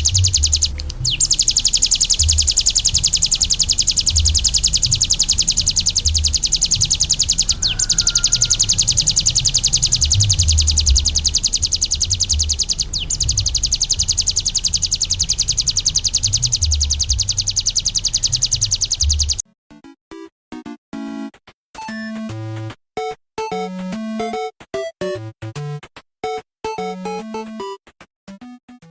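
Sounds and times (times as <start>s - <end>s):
bird fast high trill: 0.0s - 19.4s
electronic music tones: 0.0s - 19.4s.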